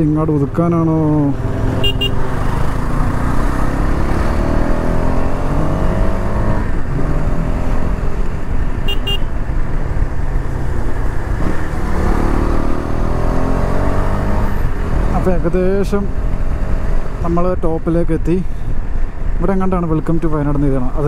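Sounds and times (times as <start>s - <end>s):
wind and road noise: 0.0s - 21.0s
motorcycle engine: 0.7s - 17.2s.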